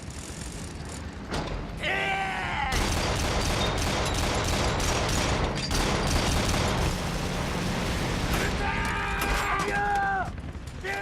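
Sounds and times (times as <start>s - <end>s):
din of battle: 1.3s - 11.0s
person shouting: 1.8s - 2.8s
rapid machine-gun fire: 2.8s - 8.2s.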